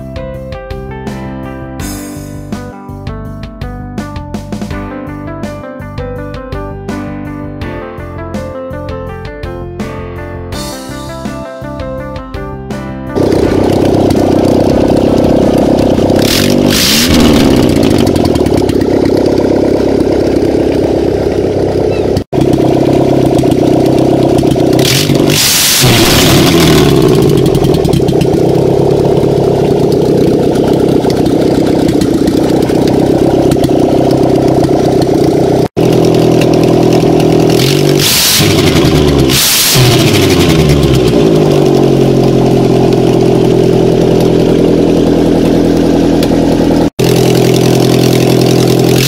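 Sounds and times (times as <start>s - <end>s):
car engine revving: 13.2s - 49.0s.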